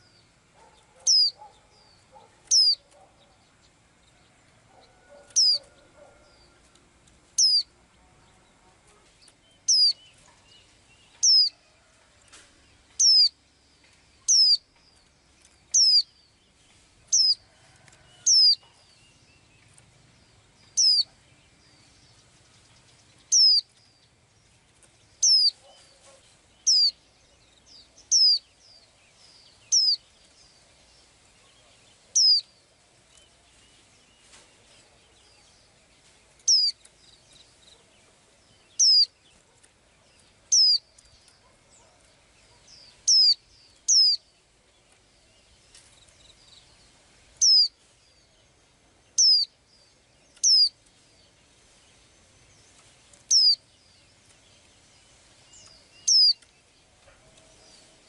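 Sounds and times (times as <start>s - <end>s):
songbird whistling call: 1.0s - 1.4s, 2.5s - 2.8s, 7.4s - 7.7s, 9.7s - 10.0s, 11.2s - 11.5s, 13.0s - 13.3s, 14.2s - 14.6s, 15.7s - 16.1s, 20.8s - 21.1s, 23.3s - 23.7s, 25.2s - 25.8s, 26.7s - 27.0s, 28.1s - 28.4s, 32.2s - 32.4s, 36.5s - 36.7s, 38.8s - 39.1s, 40.5s - 40.8s, 43.1s - 44.2s, 47.4s - 47.7s, 49.2s - 49.5s, 50.4s - 50.7s, 53.3s - 53.6s, 56.0s - 56.4s.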